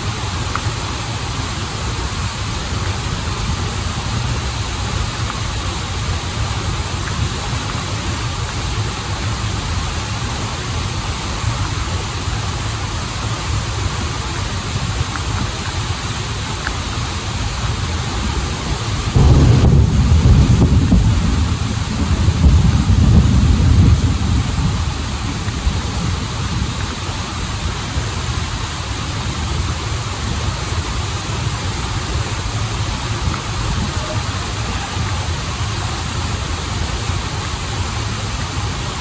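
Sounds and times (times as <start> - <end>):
waterfall and river rushing: 0.0 - 39.0.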